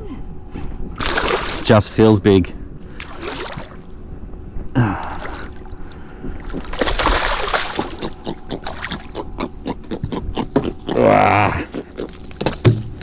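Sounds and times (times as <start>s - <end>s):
fish splashing: 1.0s - 1.7s, 3.0s - 3.9s, 6.4s - 9.2s.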